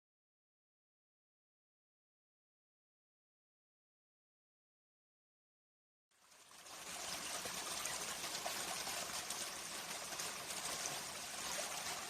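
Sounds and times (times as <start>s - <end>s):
running water trickling: 6.2s - 12.0s.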